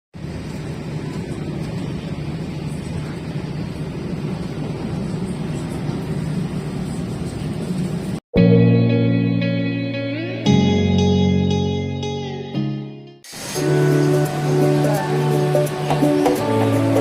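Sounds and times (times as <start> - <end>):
train rumbling: 0.2 - 8.2, 13.3 - 17.0.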